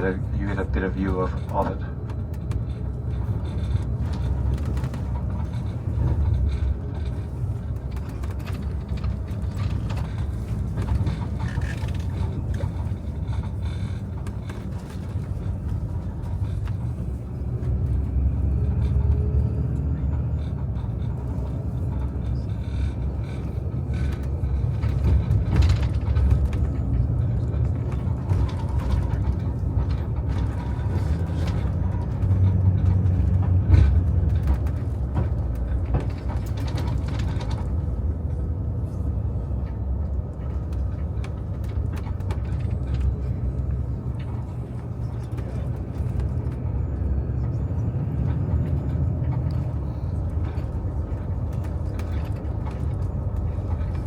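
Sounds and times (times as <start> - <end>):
light clicks and rattles: 0.0 - 54.0
vehicle road rumble: 0.0 - 54.0.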